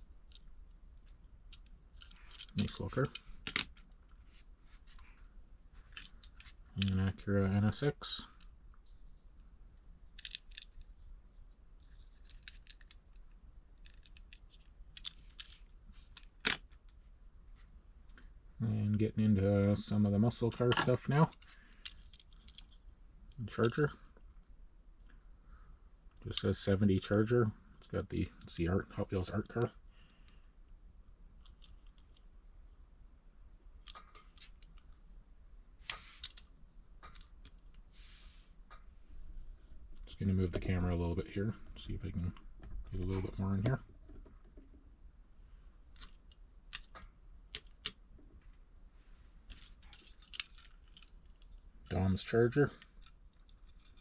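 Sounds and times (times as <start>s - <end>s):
small objects clicking: 10.1s - 10.9s, 11.8s - 16.9s, 49.5s - 52.0s, 52.7s - 54.0s
model cars clicking and scraping: 49.5s - 54.0s.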